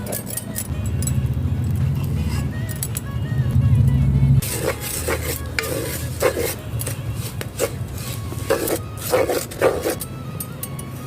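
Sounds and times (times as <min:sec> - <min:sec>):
metal spoon scraping metal pan: 0:04.4 - 0:10.1.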